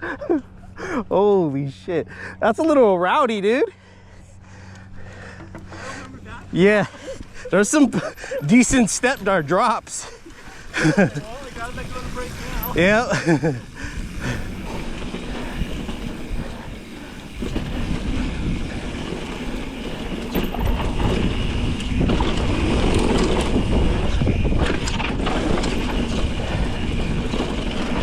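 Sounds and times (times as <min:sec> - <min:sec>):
bike tyre rumble: 0:03.3 - 0:28.0
wind buffeting microphone: 0:06.4 - 0:28.0.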